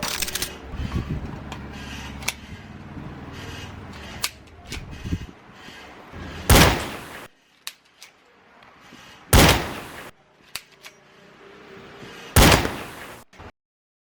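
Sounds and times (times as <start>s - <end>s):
pistol shots with echo: 6.5s - 7.2s, 9.4s - 10.1s, 12.4s - 13.1s.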